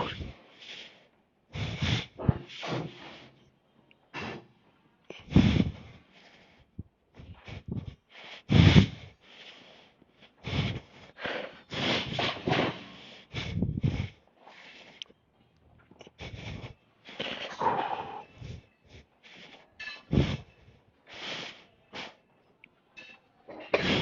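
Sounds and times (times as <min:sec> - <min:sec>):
man breathing hard: 0:00.0 - 0:03.5, 0:04.1 - 0:15.2, 0:15.9 - 0:22.3
forceful exhales and snorts: 0:01.5 - 0:03.3, 0:04.1 - 0:04.5, 0:05.2 - 0:06.4, 0:07.2 - 0:09.8, 0:10.4 - 0:14.9, 0:16.2 - 0:18.6, 0:19.3 - 0:20.5.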